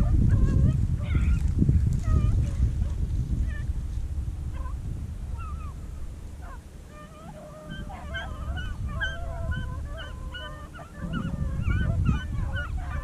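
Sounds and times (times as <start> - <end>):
beagles baying in chorus: 5.4 - 13.0.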